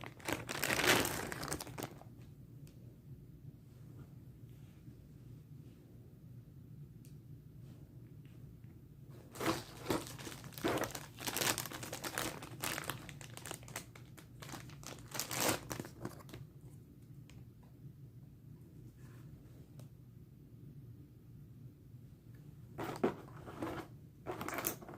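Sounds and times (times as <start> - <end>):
plastic packaging crinkling: 0.0 - 2.1, 9.3 - 16.4.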